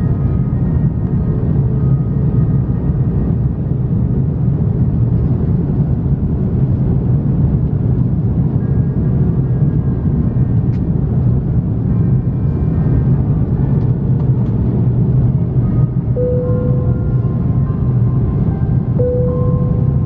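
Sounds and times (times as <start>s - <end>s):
airliner cabin engine rumble: 0.0s - 20.0s
faint steady tones: 15.4s - 20.0s.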